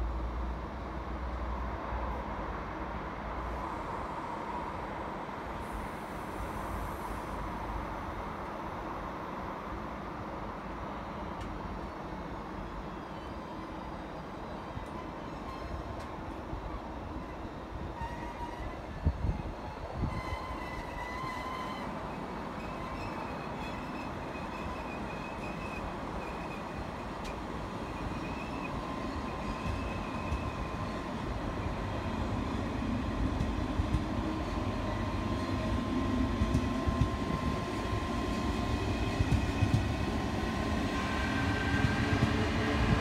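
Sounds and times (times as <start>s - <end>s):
electric train rumble: 0.0s - 43.0s
high-pitched train tones: 13.1s - 43.0s.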